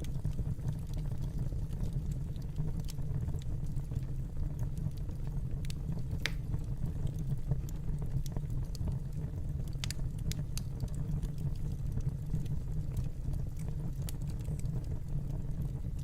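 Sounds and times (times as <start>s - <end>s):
wood fire crackling: 0.0s - 16.0s
sharp pops and snaps: 5.6s - 8.8s, 9.7s - 14.8s.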